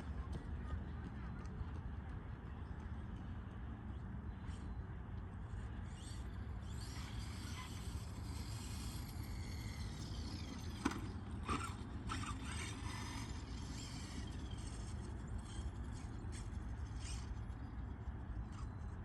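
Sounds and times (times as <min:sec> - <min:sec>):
high electric motor whine: 0:05.4 - 0:19.0.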